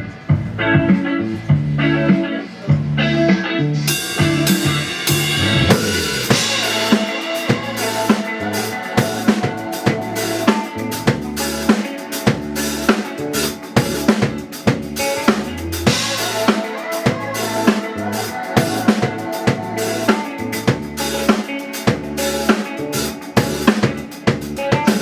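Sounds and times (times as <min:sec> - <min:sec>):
low bass notes: 0:00.0 - 0:06.9, 0:07.5 - 0:16.5, 0:17.1 - 0:21.3, 0:21.9 - 0:25.0
drum kit beat: 0:00.1 - 0:25.0
sustained chords: 0:03.8 - 0:21.3.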